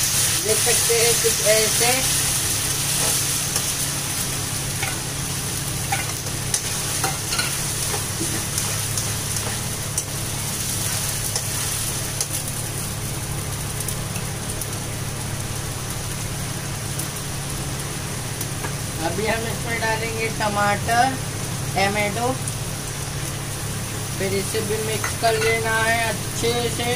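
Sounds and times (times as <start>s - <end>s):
paste sizzling in hot oil: 0.0s - 13.7s.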